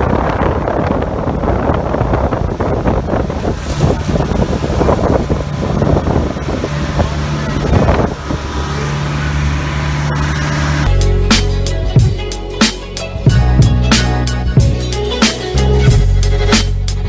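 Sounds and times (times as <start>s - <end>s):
wind blowing across microphone: 0.0s - 8.8s
boat engine droning: 0.0s - 17.0s.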